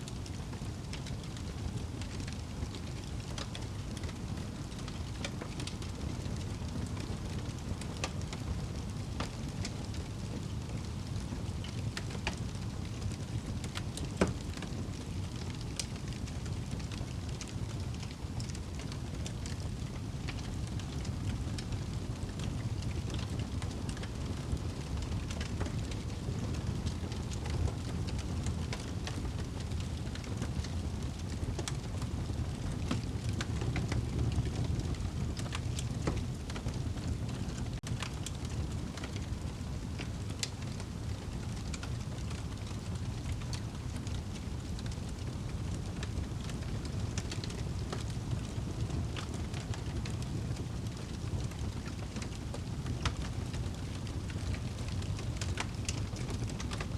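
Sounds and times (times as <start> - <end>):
fire crackles and pops: 0.0 - 56.9
fire flames rumbling: 0.0 - 56.9.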